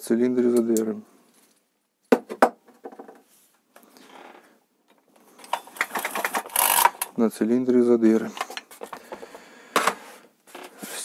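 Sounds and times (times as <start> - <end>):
tools clicking and rattling: 4.9 - 7.2.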